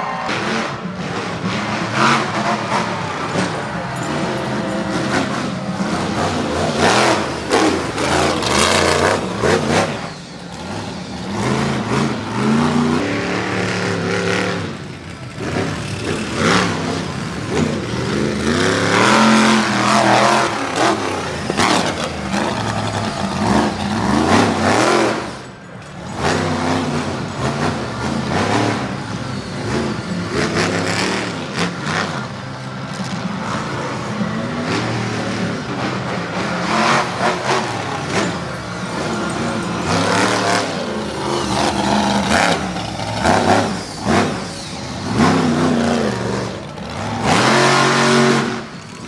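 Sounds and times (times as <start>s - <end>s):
monster truck engine revving: 0.0s - 49.0s.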